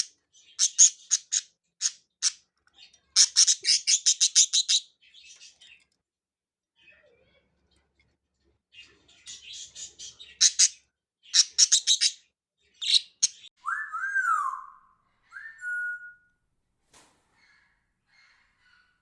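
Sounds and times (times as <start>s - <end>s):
budgerigars chirping: 0.0s - 2.4s, 3.1s - 4.9s, 9.3s - 14.6s.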